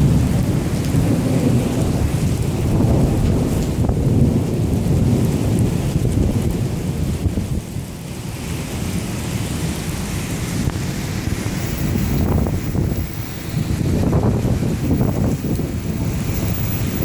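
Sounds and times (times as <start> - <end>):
thunder rumbling: 0.0 - 7.7, 11.2 - 17.0
heavy rain: 0.0 - 17.0.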